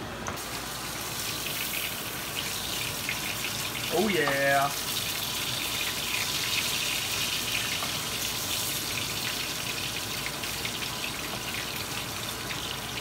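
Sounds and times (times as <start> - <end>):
fish sizzling in hot oil: 0.4 - 13.0.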